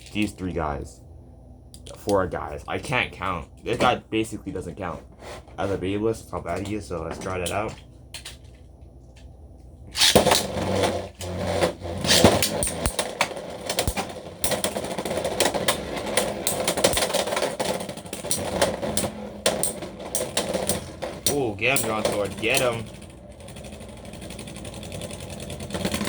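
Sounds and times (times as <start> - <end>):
spinning tops whirring: 9.9 - 26.0
spinning tops clashing: 12.1 - 13.1.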